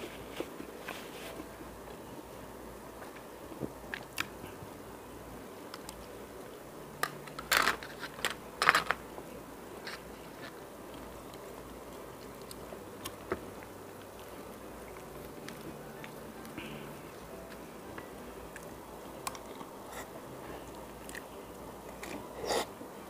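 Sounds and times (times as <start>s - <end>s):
person chewing: 19.3s - 21.3s.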